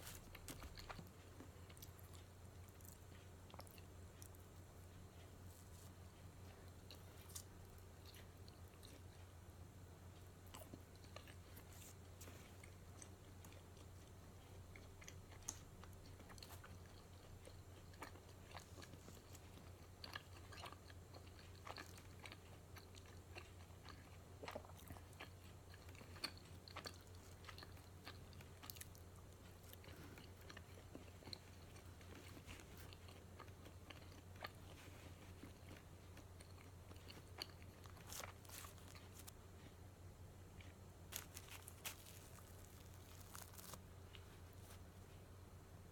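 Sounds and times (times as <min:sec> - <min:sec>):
person chewing: 0:00.0 - 0:09.3, 0:10.2 - 0:39.8, 0:40.5 - 0:45.2
low steady hum: 0:00.0 - 0:45.9
small crunches: 0:29.5 - 0:39.7, 0:40.6 - 0:44.8.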